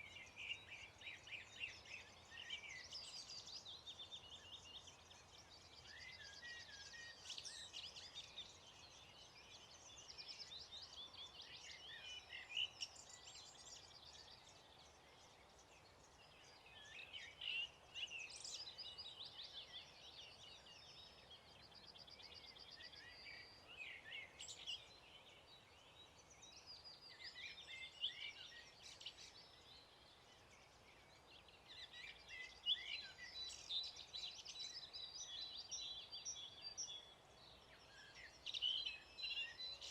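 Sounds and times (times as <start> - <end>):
outdoor background hiss: 0.0 - 39.9
songbirds chirping and trilling: 0.0 - 39.9.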